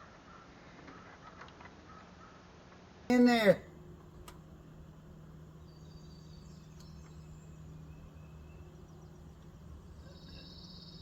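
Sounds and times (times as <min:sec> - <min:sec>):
steady low hum: 0:03.1 - 0:11.0.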